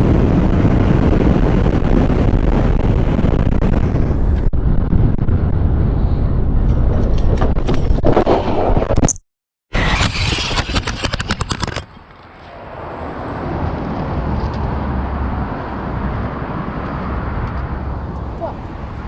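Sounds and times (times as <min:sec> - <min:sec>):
moving vehicle rumble: 0:00.0 - 0:08.0, 0:09.8 - 0:19.0
sharp clattering clicks: 0:09.8 - 0:12.3.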